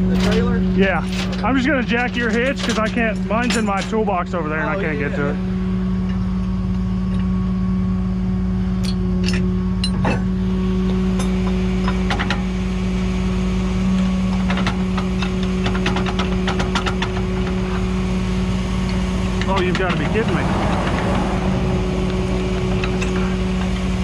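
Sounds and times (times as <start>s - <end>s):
metallic clicks and clanks: 0.0s - 4.1s, 14.3s - 17.8s, 18.8s - 21.2s, 22.0s - 23.8s
truck engine idling: 0.0s - 24.0s.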